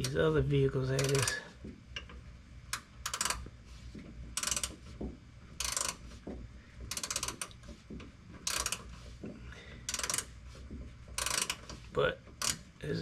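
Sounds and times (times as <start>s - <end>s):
ratchet wrench clicking: 1.0s - 1.4s, 2.7s - 3.4s, 4.4s - 4.8s, 5.6s - 6.0s, 6.9s - 7.6s, 8.4s - 8.9s, 9.9s - 10.3s, 11.2s - 11.8s, 12.4s - 12.7s.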